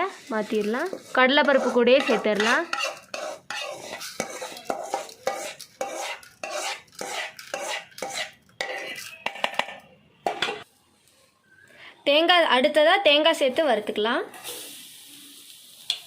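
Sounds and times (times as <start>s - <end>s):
spoon scraping and knocking on a pan: 0.1s - 10.7s.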